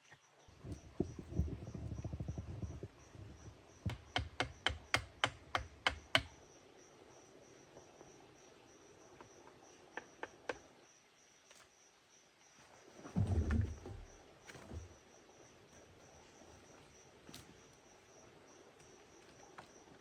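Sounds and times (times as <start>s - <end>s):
sharp knocks: 3.9s - 6.3s.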